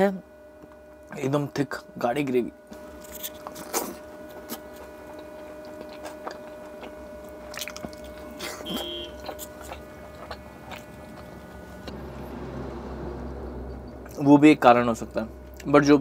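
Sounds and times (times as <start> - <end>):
faint steady hum: 0.0 - 16.0
man chewing with mouth clicks: 2.7 - 12.4.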